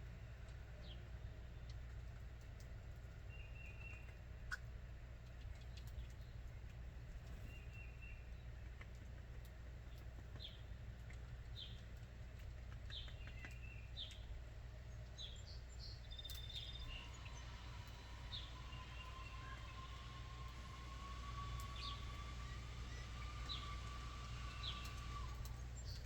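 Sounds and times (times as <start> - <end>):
wild birds chirping: 7.2 - 9.1, 9.8 - 26.0
distant steady rising tone: 14.2 - 26.0.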